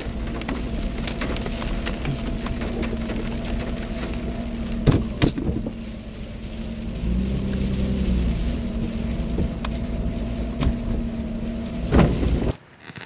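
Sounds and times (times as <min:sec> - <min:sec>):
car engine running: 0:00.0 - 0:12.5.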